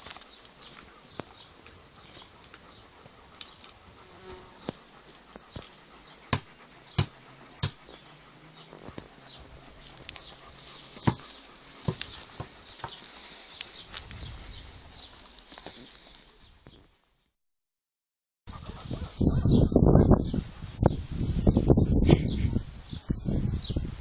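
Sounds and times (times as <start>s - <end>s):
high insect-like buzzing: 2.0s - 14.4s.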